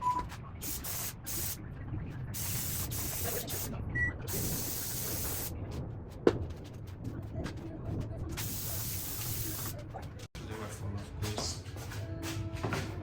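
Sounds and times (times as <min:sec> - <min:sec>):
spray-like hissing: 0:00.6 - 0:01.6, 0:02.4 - 0:03.7, 0:04.3 - 0:05.5, 0:08.4 - 0:09.7.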